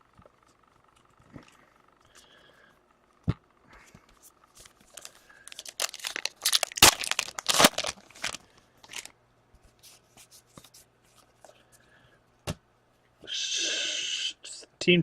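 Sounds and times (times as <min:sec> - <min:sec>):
wrapper tearing and crinkling: 0:04.9 - 0:09.1.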